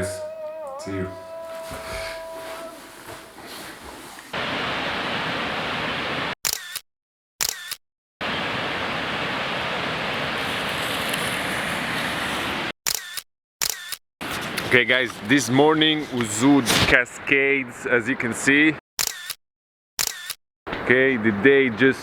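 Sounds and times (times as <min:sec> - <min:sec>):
waterfall rushing: 0:01.2 - 0:06.4, 0:08.2 - 0:12.7
camera shutter clicks: 0:06.5 - 0:06.8, 0:07.4 - 0:07.8, 0:12.9 - 0:14.0, 0:19.0 - 0:19.4, 0:20.0 - 0:20.4.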